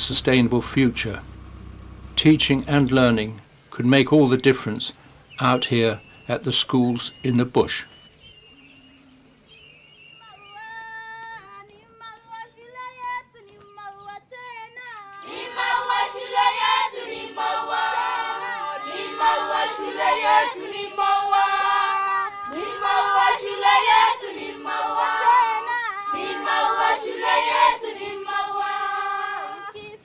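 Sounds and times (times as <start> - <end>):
children's choir singing: 15.2 - 30.0.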